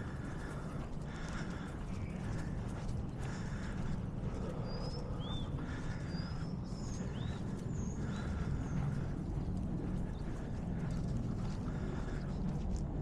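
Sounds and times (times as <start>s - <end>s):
low wind rumble: 0.0s - 13.0s
small bird chirping: 4.4s - 8.7s.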